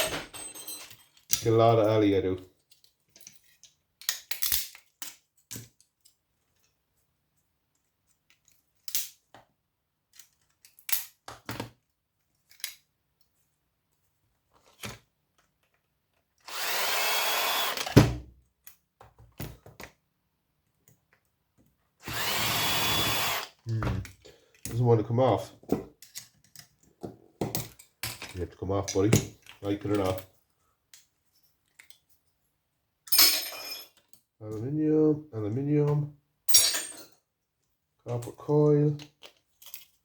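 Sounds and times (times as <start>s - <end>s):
cordless drill running: 16.5s - 18.0s, 22.0s - 23.6s.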